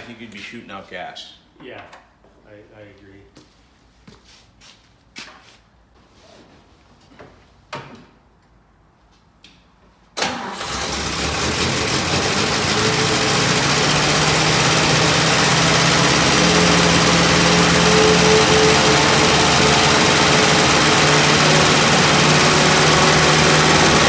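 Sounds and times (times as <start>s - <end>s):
car engine starting and running: 10.2s - 24.0s.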